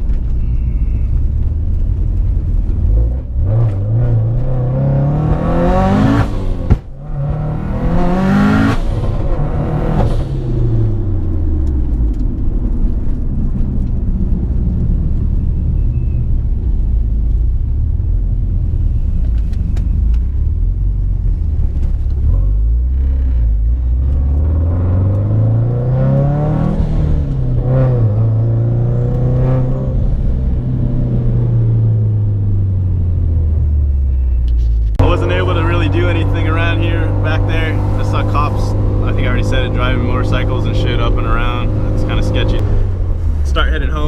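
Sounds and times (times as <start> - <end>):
turbocharged car engine revving: 2.9 - 11.4, 22.2 - 32.0, 35.0 - 44.0.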